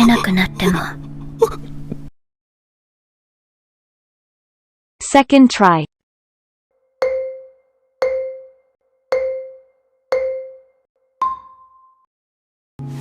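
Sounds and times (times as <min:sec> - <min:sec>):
marimba-like mallet notes: 0:07.0 - 0:11.9.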